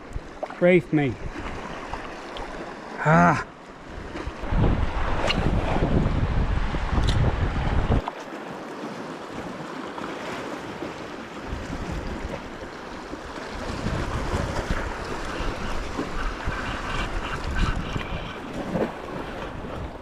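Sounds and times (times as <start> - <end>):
sea water sloshing around kayak: 0.0 - 6.1, 7.7 - 20.0
wind buffeting microphone: 1.1 - 2.6, 3.8 - 8.1, 11.4 - 12.6, 13.2 - 20.0.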